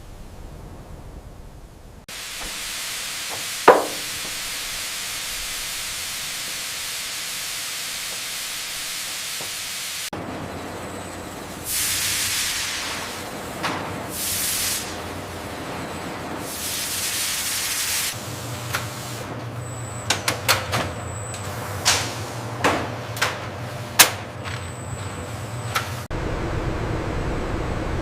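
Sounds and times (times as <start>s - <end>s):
hissing bursts: 2.1s - 10.1s
sharp clicks and knocks: 3.3s - 4.4s
steady rushing noise: 26.1s - 28.0s.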